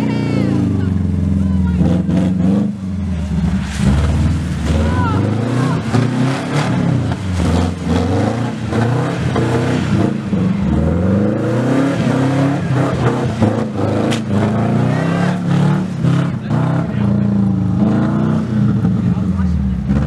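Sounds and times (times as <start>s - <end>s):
car engine revving: 0.0s - 20.0s
sharp crack: 12.9s - 14.6s.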